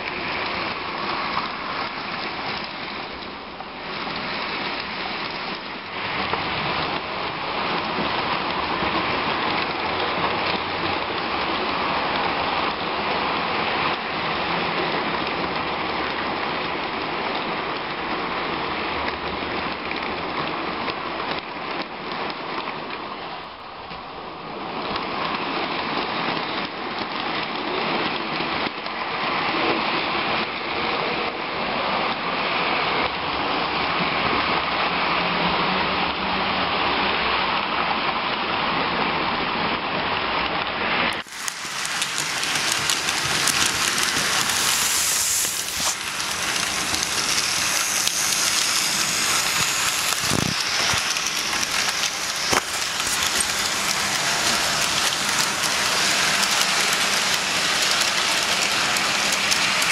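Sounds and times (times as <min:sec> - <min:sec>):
model trains rattling on track: 0:00.0 - 0:59.9
fine ticking: 0:41.2 - 0:59.9.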